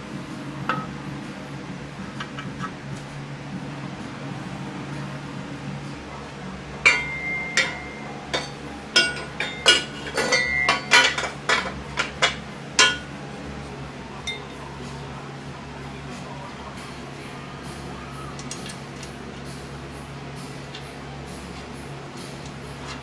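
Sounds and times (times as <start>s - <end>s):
steady low hum: 0.0s - 23.0s
metal objects clinking: 6.8s - 13.1s.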